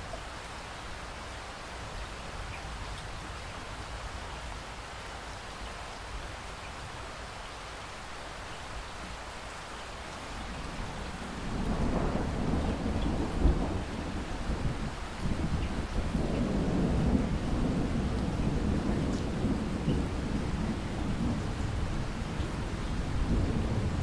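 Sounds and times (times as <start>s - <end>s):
steady rain: 0.0s - 24.0s
rolling thunder: 10.5s - 24.0s.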